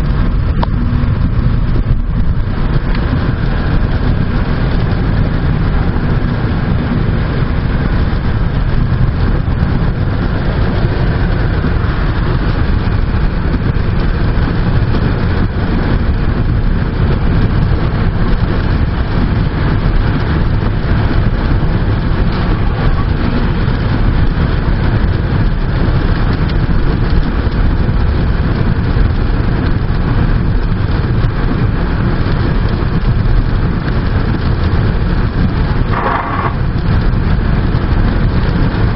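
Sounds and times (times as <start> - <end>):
strong wind blowing: 0.0 - 38.9
wind rumble on microphone: 0.0 - 38.9.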